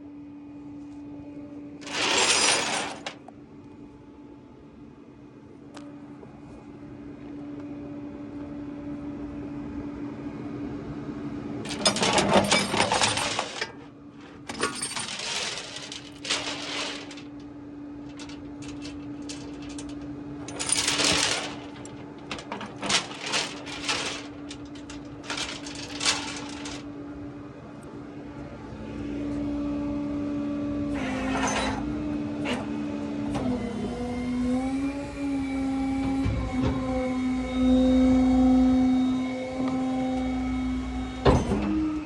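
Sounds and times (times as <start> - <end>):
low hum: 11.6 - 30.3
loose metal jingling: 14.5 - 17.3, 18.1 - 26.8.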